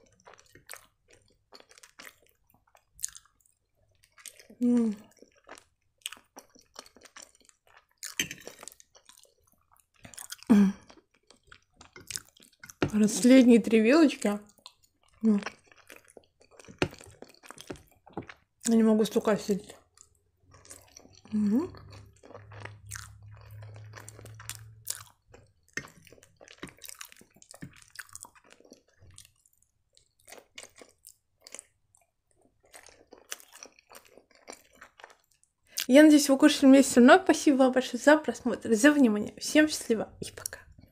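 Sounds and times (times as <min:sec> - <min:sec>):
chewing pasta: 0:00.0 - 0:13.4, 0:14.4 - 0:35.9.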